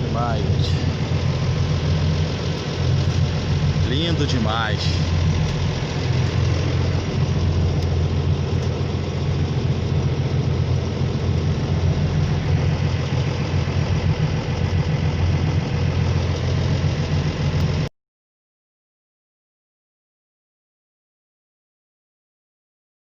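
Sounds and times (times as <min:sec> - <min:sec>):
motorboat engine droning: 0:00.0 - 0:17.9
wind: 0:00.0 - 0:17.9.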